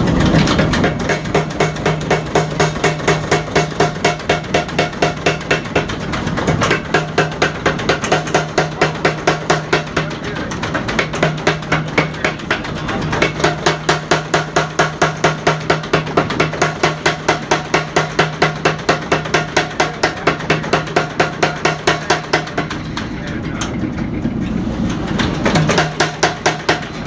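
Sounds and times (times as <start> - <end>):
motor hum: 0.0 - 19.4
power hammer pounding hot steel: 0.0 - 27.0.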